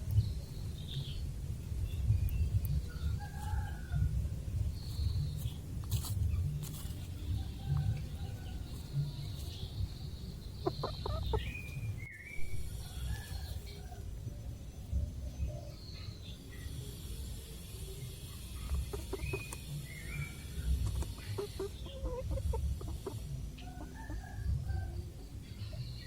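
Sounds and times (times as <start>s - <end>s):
steady low rumble: 0.0s - 26.0s
chickens clucking and calling: 2.6s - 14.2s, 18.1s - 26.0s.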